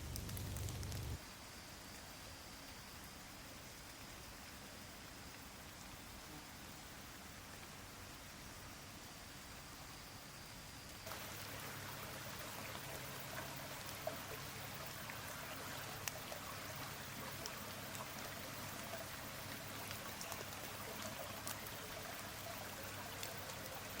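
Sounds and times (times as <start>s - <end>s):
drops ticking on wood and leaves: 0.0s - 1.2s, 11.0s - 24.0s
steady rain falling: 0.0s - 24.0s.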